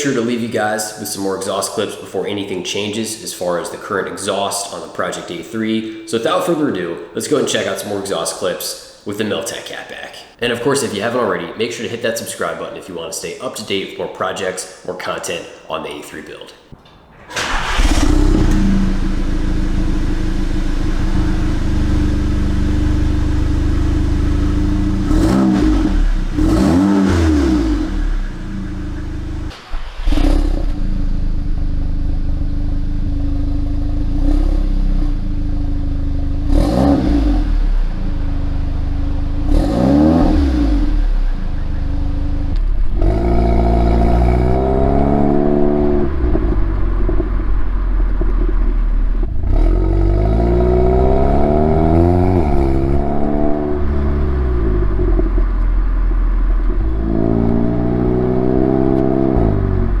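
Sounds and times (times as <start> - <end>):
car engine idling and revving: 17.2 - 60.0.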